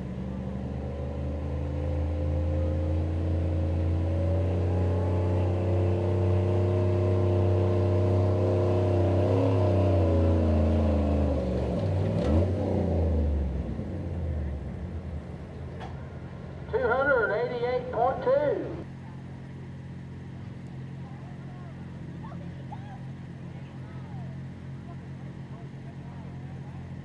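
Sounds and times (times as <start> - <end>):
truck engine at full throttle: 0.0 - 27.0.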